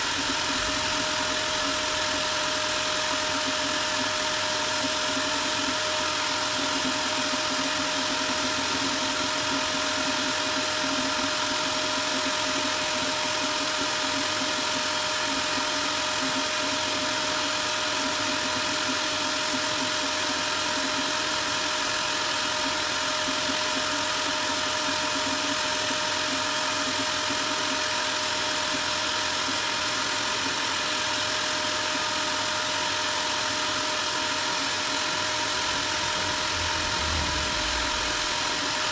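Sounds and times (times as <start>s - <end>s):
power sander whining: 33.4s - 38.9s.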